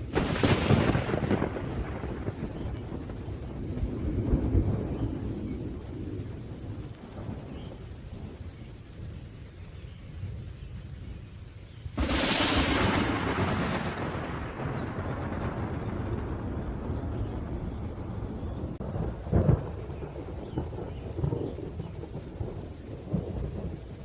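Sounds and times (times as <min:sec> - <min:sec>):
rolling thunder: 0:00.0 - 0:11.2, 0:11.9 - 0:24.0
steady rain: 0:00.0 - 0:24.0.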